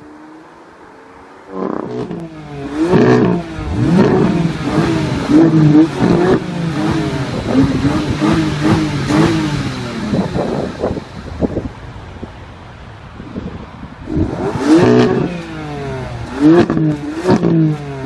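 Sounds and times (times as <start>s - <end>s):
car engine revving: 1.5s - 11.6s, 14.0s - 18.0s.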